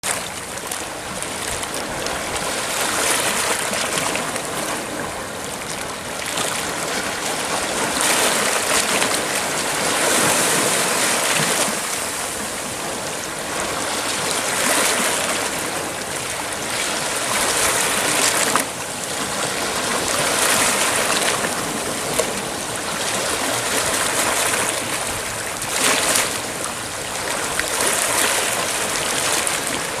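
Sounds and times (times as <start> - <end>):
sea waves breaking on shore: 0.0 - 30.0.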